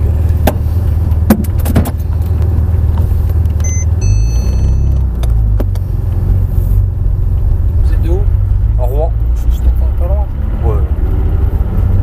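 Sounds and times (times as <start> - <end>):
car engine running hard: 0.0 - 12.0
thin high tone: 3.6 - 5.0.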